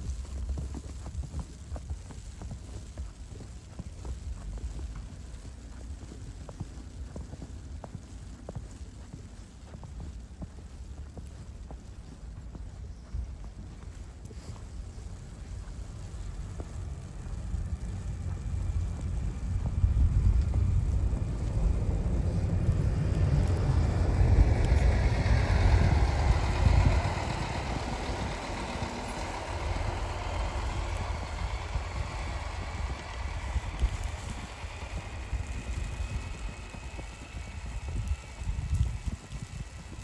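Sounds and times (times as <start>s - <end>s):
wind buffeting microphone: 10.1s - 40.0s
vehicle passing: 15.0s - 39.7s.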